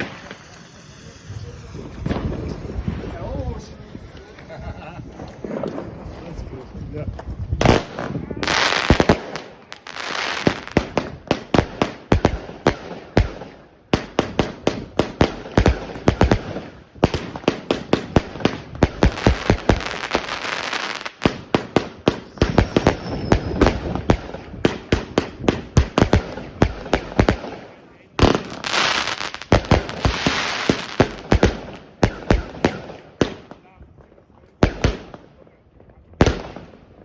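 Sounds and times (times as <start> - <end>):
firework rapid bangs: 0.0 - 6.0, 7.6 - 33.6, 34.6 - 35.2, 36.2 - 36.8
firework crackling hiss: 0.0 - 6.4, 7.7 - 12.1, 14.0 - 32.6.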